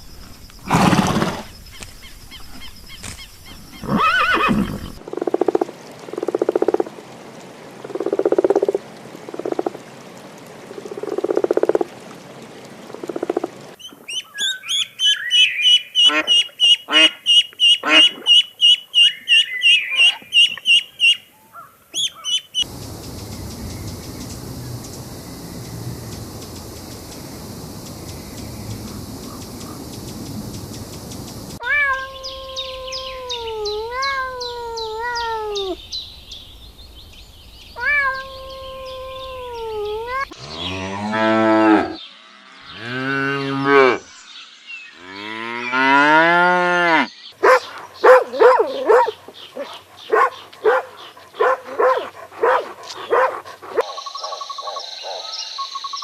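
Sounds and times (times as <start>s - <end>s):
drawn-out falling animal calls: 0.6s - 6.9s, 15.6s - 36.0s, 37.7s - 44.0s, 45.0s - 55.5s
ducks quacking: 16.0s - 18.4s, 47.4s - 53.9s
cow mooing: 40.3s - 44.0s.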